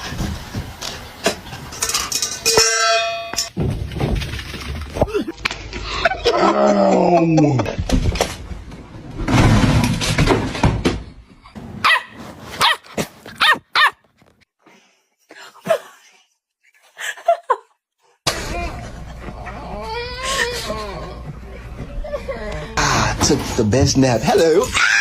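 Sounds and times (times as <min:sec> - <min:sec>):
dog barking and whining: 0:11.8 - 0:14.1.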